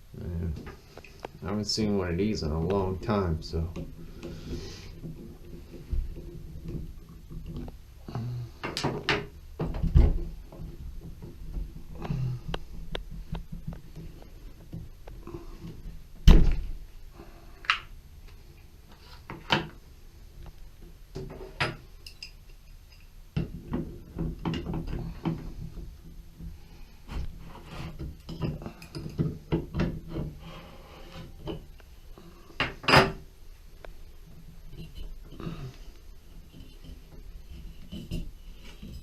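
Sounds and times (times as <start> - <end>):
hard objects knocking and clunking: 2.6 - 7.8, 8.5 - 16.8, 23.3 - 30.5, 34.3 - 39.0.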